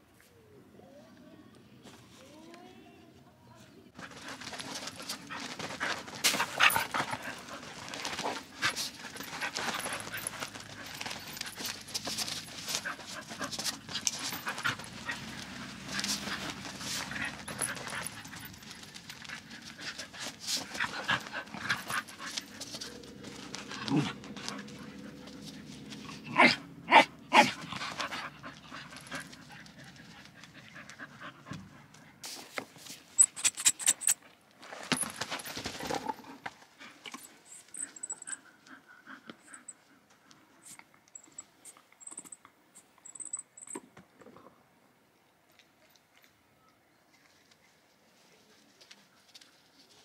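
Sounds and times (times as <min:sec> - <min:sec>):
dogs panting: 0:04.0 - 0:26.2, 0:27.4 - 0:32.2, 0:35.4 - 0:40.7
dogs scuffling on mat: 0:04.0 - 0:26.2.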